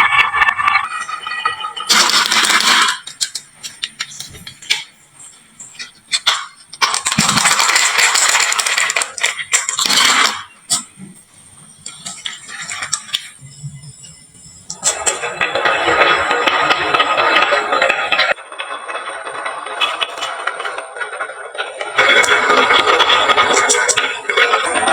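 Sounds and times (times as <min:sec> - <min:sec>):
marbles clattering down wooden run: 0:00.0 - 0:04.1, 0:06.2 - 0:10.5, 0:14.7 - 0:24.9.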